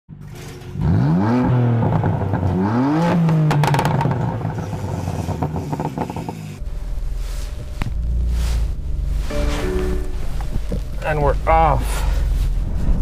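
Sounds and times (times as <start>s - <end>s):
car engine revving: 0.8s - 12.6s
exhaust crackle of sharp pops: 3.5s - 6.4s.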